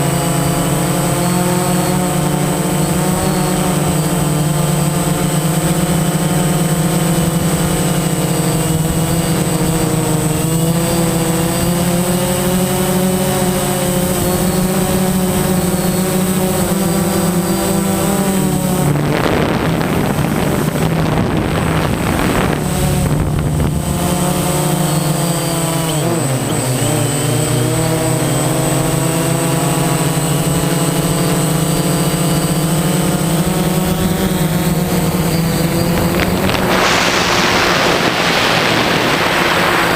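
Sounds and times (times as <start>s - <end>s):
drone propellers buzzing: 0.0s - 39.9s
rough rushing noise: 16.4s - 29.2s, 33.0s - 39.9s.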